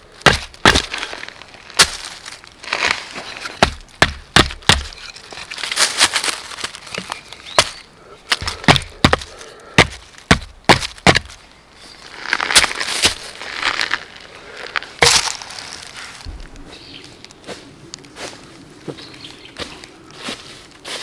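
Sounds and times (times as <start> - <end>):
wood splintering: 0.0 - 11.4, 12.3 - 13.9
firewood chopping knocks: 0.2 - 0.9, 3.6 - 5.0, 8.3 - 11.4.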